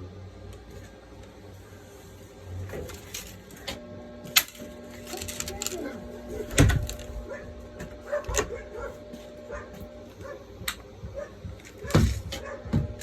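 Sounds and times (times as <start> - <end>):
steady hum: 0.0 - 13.0
dog whining and yipping: 8.1 - 10.4.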